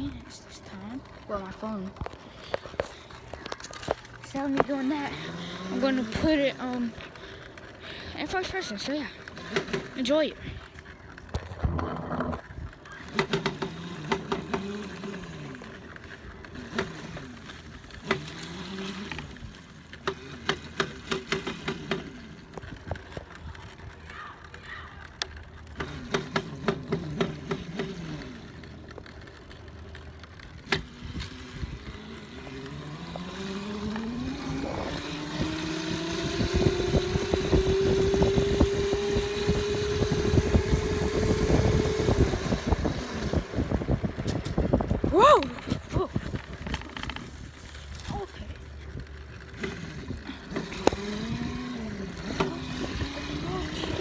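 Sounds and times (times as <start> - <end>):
dirt bike engine revving: 4.2 - 10.7, 11.5 - 23.0, 25.7 - 54.0
sharp clicks and knocks: 10.7 - 15.2, 15.9 - 23.6, 25.1 - 31.3.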